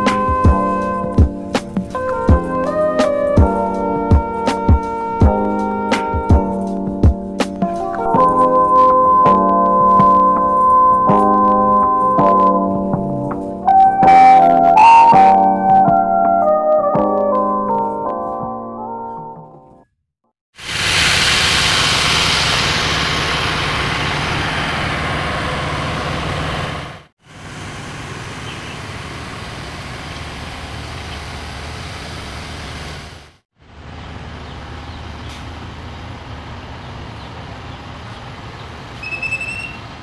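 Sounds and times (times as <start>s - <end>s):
train running rumble: 20.6s - 33.2s
high squeal: 39.0s - 39.9s.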